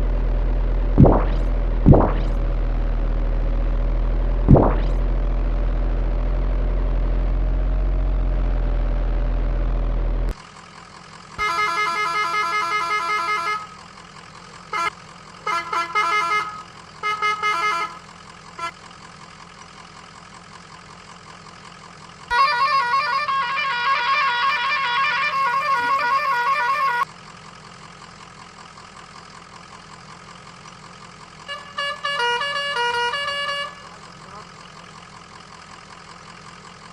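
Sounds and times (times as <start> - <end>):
pulsing horn blast: 0.0 - 5.3, 11.4 - 13.9, 14.6 - 18.8, 22.3 - 27.0, 31.4 - 34.7
engine drone: 0.0 - 36.9
warbling horn-like tone: 1.0 - 2.4, 4.5 - 5.0
short horn honks: 11.4 - 13.8, 14.7 - 18.8, 22.3 - 27.0, 31.4 - 34.6.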